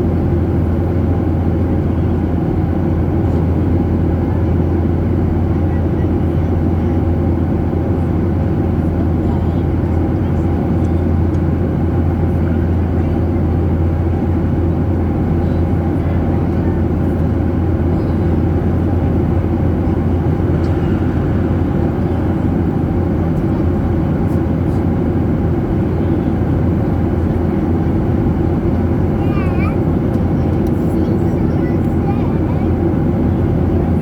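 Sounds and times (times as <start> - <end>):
jet engine drone inside cabin: 0.0 - 34.0.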